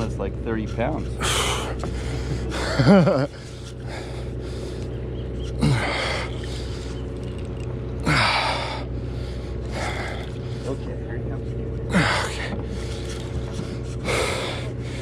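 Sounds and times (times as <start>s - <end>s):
low hum from boat: 0.0s - 15.0s
man gasping and groaning: 1.2s - 2.7s, 5.6s - 6.6s, 8.0s - 10.4s, 11.9s - 12.8s.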